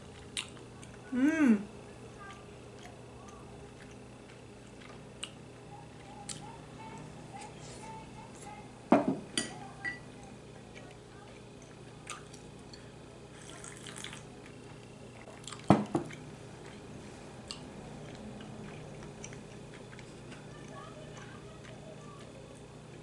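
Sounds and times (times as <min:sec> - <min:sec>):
faint steady hum: 0:00.0 - 0:23.0
liquid sound: 0:13.4 - 0:14.6.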